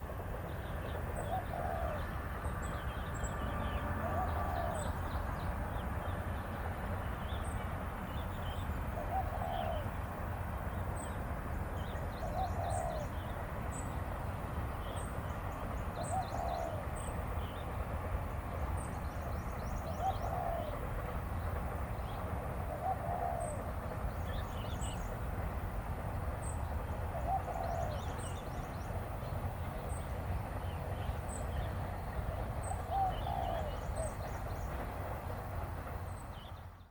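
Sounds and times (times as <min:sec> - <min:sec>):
low bird call: 0:22.7 - 0:25.0, 0:32.6 - 0:34.8.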